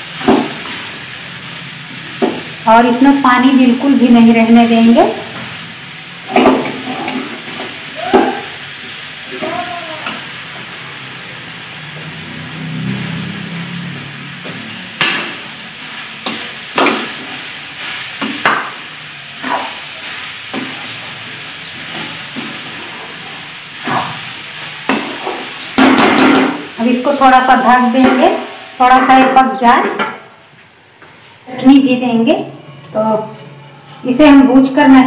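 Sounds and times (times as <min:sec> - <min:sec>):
food sizzling in a pan: 0:00.0 - 0:32.8
spatula scraping a pan: 0:19.3 - 0:21.0.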